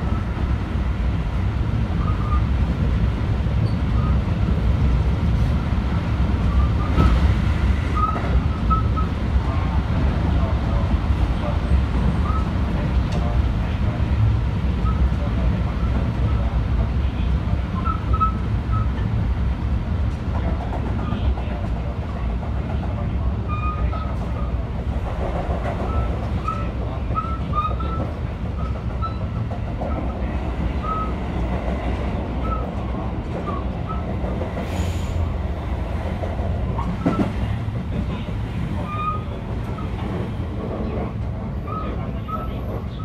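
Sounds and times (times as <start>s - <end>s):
rumble of train wheels on rail: 0.0s - 43.0s
short high wheel squeaks: 38.8s - 39.9s, 41.7s - 42.6s.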